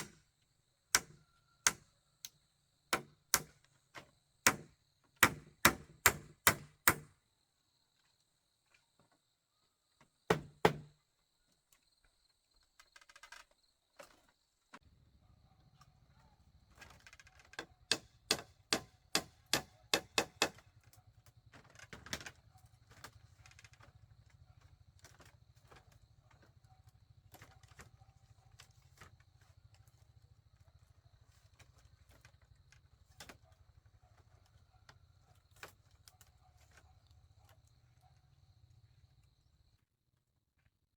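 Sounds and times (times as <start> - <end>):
tool striking bamboo: 0.0 - 0.3, 0.9 - 1.9, 2.9 - 7.2, 10.3 - 10.9, 17.5 - 20.7.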